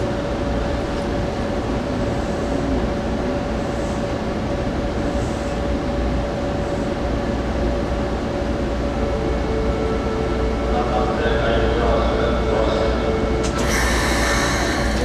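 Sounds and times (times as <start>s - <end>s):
faint steady whine: 0.0s - 15.0s
standing train hum: 0.0s - 15.0s.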